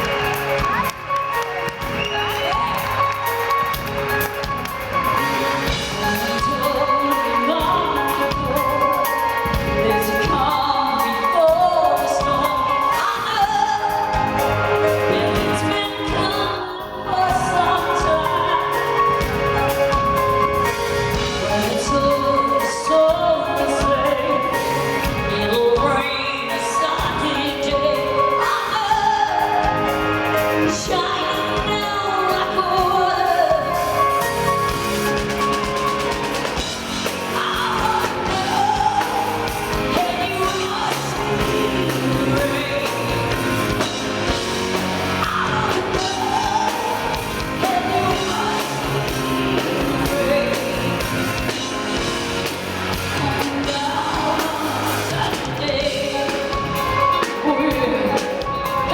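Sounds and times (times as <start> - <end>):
live rock band playing: 0.0 - 58.9
woman singing: 0.0 - 58.9.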